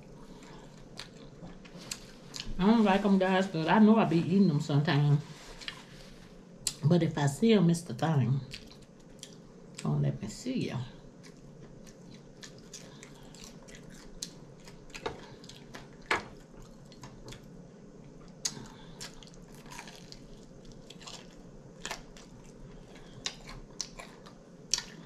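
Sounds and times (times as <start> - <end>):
chewing and wet mouth sounds: 0.0 - 2.6, 8.4 - 9.9, 11.1 - 25.0
crunching chicken wings: 11.2 - 17.5, 18.3 - 25.0.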